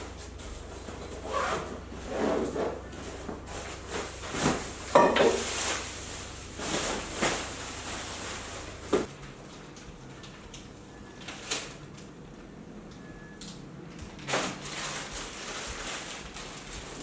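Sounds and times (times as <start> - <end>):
rustling and handling noises: 0.0 - 10.5, 14.0 - 17.0.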